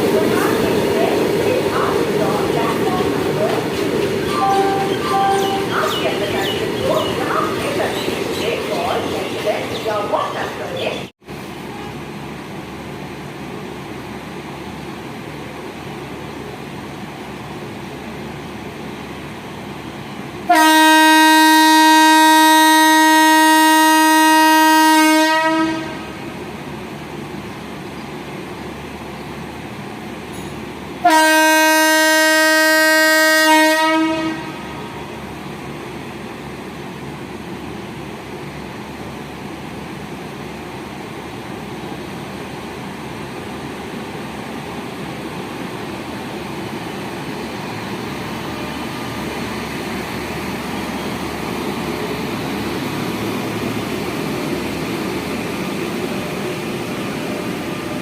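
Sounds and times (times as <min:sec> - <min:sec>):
train rolling on rails: 0:00.0 - 0:58.0
locomotive horn: 0:04.3 - 0:06.0, 0:20.5 - 0:26.2, 0:31.0 - 0:35.0.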